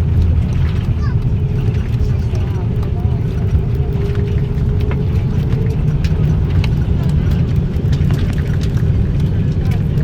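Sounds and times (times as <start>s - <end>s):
aircraft engines rumbling: 0.0s - 10.0s.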